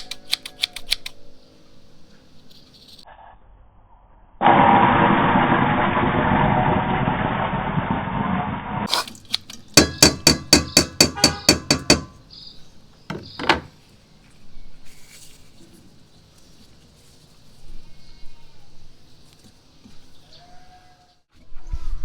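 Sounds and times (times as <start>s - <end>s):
steady rumbling: 3.6s - 8.9s
sharp ringing knocks: 9.8s - 12.2s.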